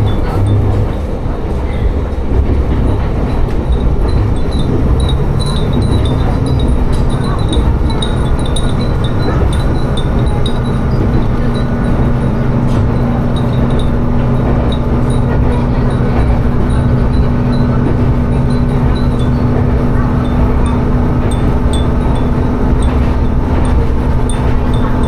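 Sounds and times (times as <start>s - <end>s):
train engine hum: 0.0s - 25.0s
wheel and rail noise: 0.0s - 25.0s
glass wind chimes tinkling: 4.3s - 25.0s.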